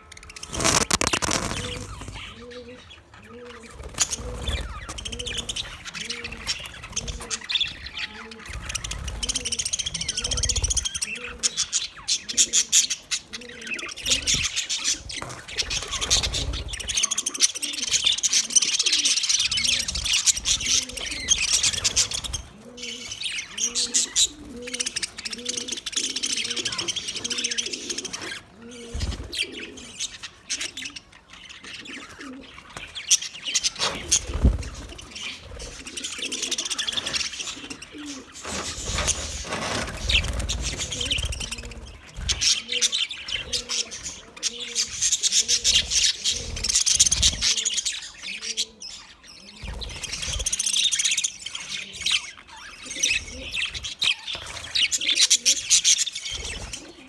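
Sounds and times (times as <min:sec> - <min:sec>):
budgerigars chattering and warbling: 0:00.0 - 0:57.0
low cooing: 0:00.4 - 0:03.7.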